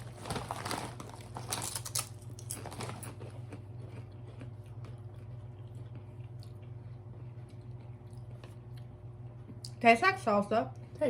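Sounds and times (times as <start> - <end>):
chips crunching and chewing: 0.0 - 9.0
steady low hum: 0.0 - 11.0.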